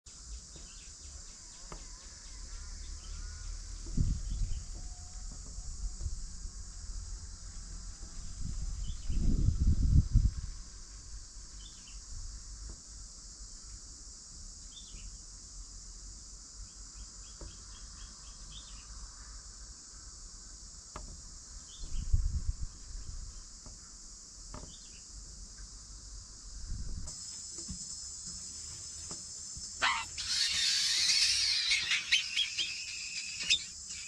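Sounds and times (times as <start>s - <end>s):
high-pitched insect drone: 27.1s - 34.0s
ticking chirps: 29.5s - 34.0s
faint bird chirps: 29.8s - 34.0s.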